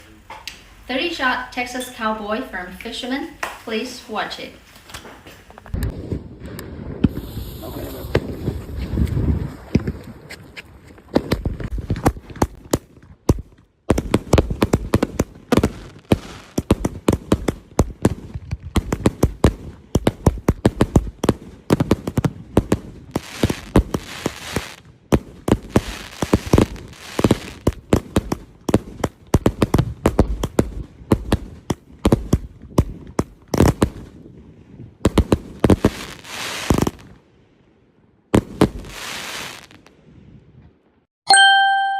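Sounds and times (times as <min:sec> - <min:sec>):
fireworks aerial bursts crackling: 0:02.9 - 0:34.4, 0:35.0 - 0:37.2, 0:38.3 - 0:40.0
fireworks launch thumps: 0:04.9 - 0:10.0, 0:11.1 - 0:34.1, 0:35.1 - 0:37.1.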